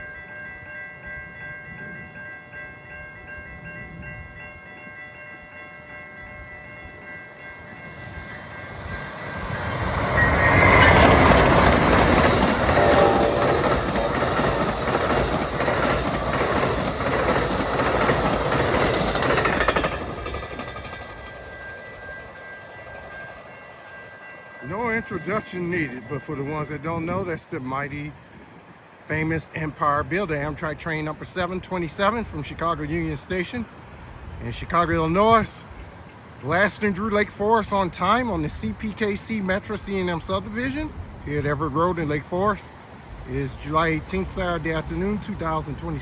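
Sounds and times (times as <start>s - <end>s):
steady high ringing tones: 0.0s - 27.6s
train roaring past: 0.0s - 46.0s.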